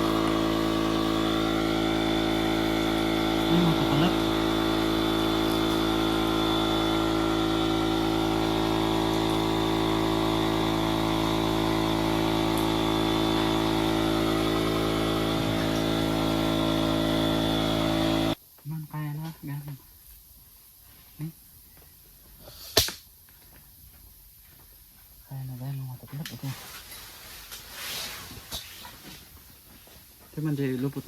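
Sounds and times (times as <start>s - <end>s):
electric air pump humming: 0.0s - 18.4s.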